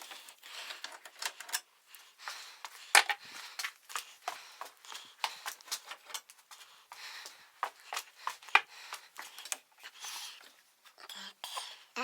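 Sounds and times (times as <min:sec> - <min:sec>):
hand tools clicking and knocking: 0:02.9 - 0:03.2.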